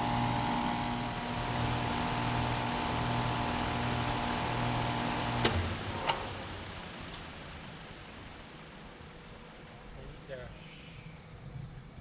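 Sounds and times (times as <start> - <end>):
heat pump compressor and fan hum: 0.0 - 7.2.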